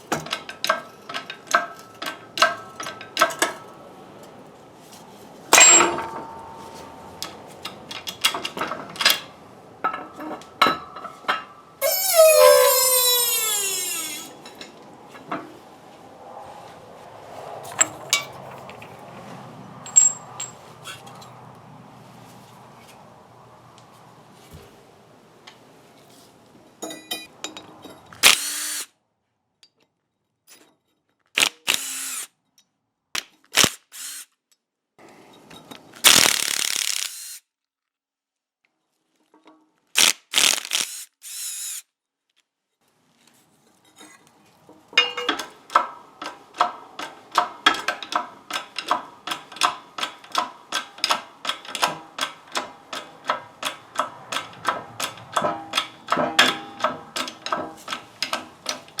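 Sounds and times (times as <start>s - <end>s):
power tool running in bursts: 11.8s - 14.4s.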